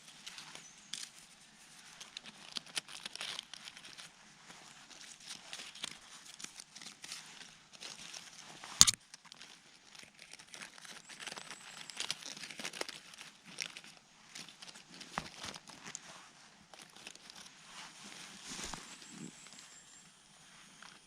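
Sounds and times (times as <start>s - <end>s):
dry forest litter crunching: 4.8s - 19.5s.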